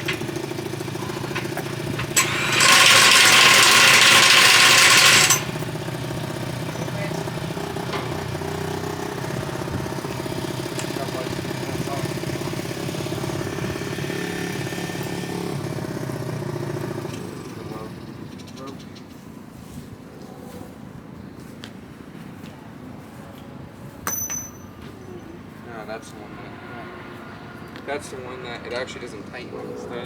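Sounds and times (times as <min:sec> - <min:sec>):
engine idling: 0:00.0 - 0:18.8.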